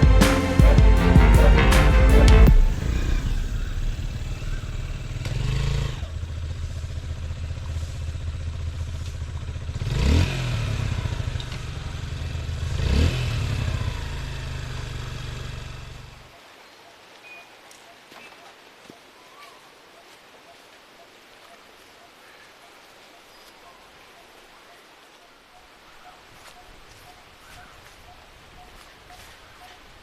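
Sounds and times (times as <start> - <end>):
motorcycle engine revving: 0.0 - 16.3.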